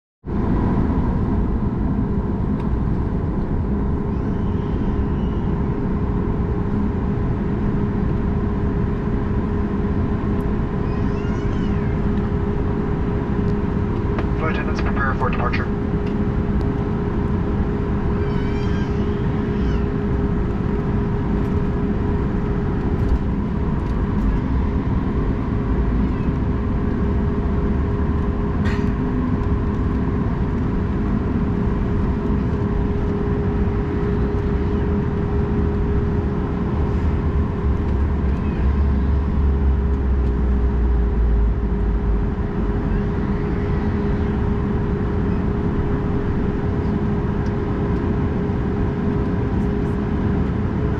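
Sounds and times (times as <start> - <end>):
airplane cabin hum: 0.3 - 50.9
low rumble: 19.8 - 50.9.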